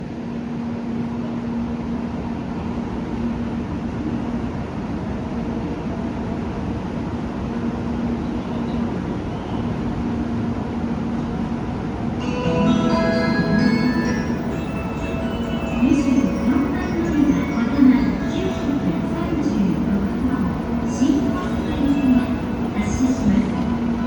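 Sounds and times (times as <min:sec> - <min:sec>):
rumbling station ambience: 0:00.0 - 0:24.0
bell-like chime melody: 0:12.2 - 0:23.0.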